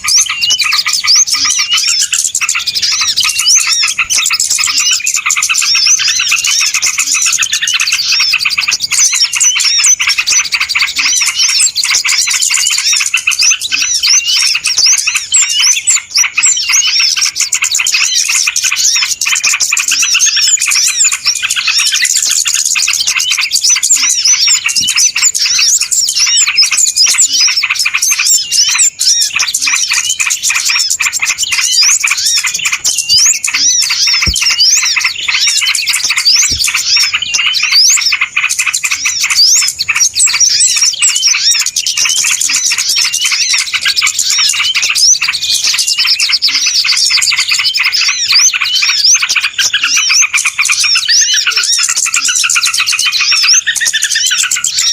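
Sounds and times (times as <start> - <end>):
flock of small birds chirping: 0.0 - 54.9.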